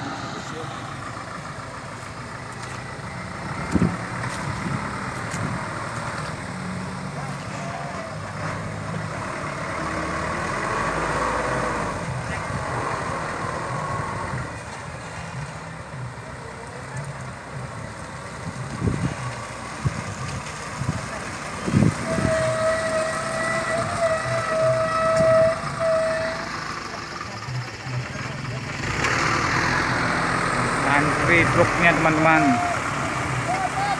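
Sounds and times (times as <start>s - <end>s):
truck engines running: 0.0s - 33.9s
truck horn: 21.5s - 28.0s.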